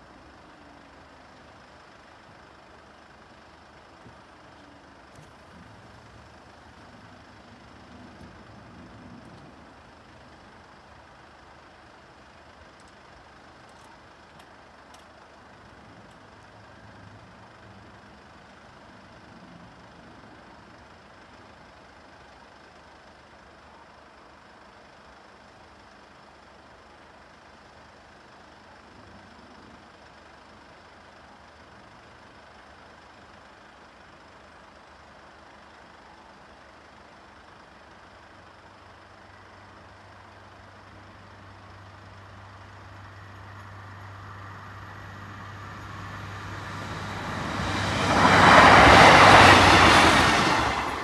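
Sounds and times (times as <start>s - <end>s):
diesel train passing: 39.0s - 51.0s.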